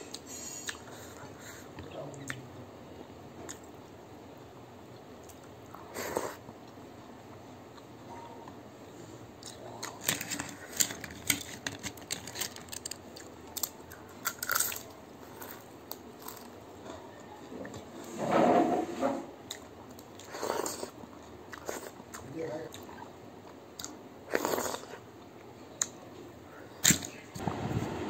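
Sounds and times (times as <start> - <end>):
person chewing food: 9.4 - 17.0, 19.5 - 25.9.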